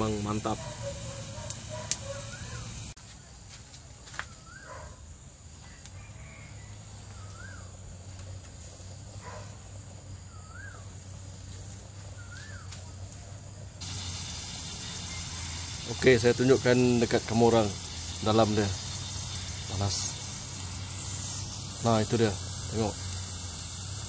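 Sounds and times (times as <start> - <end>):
wood fire crackling: 0.0 - 3.0, 11.2 - 24.0
bird calling: 0.4 - 2.9.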